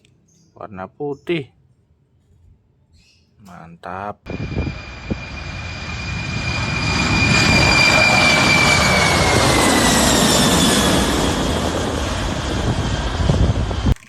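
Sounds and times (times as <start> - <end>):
toy airplane jet-engine sound effect: 4.4 - 12.2.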